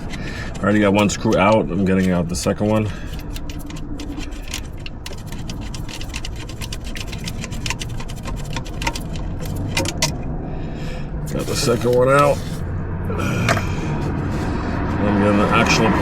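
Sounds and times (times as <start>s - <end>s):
steady low hum: 0.0s - 16.0s
ratchet clicking: 1.0s - 10.2s.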